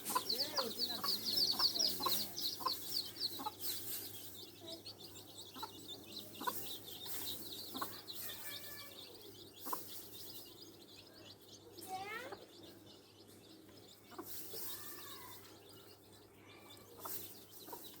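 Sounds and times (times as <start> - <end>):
hen clucking: 0.0 - 11.0, 13.7 - 15.3, 16.8 - 18.0
chicks peeping: 0.0 - 18.0.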